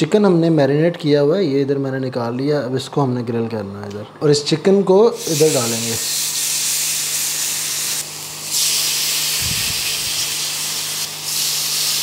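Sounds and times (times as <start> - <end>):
chicken sizzling on grill pan: 5.2 - 12.0.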